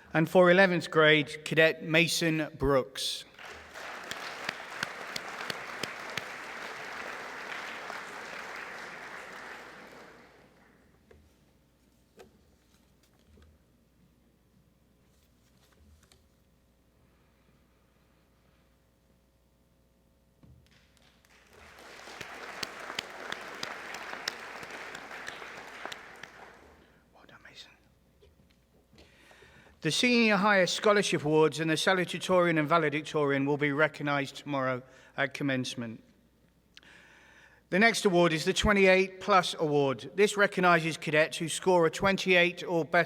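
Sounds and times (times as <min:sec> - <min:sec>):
sharp single claps: 0:03.4 - 0:08.6, 0:20.7 - 0:26.6
audience applauding: 0:03.4 - 0:10.8, 0:21.0 - 0:26.8.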